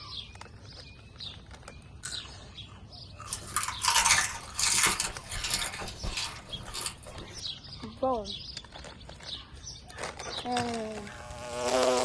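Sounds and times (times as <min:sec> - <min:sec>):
crunchy snack being chewed: 0:00.0 - 0:02.4.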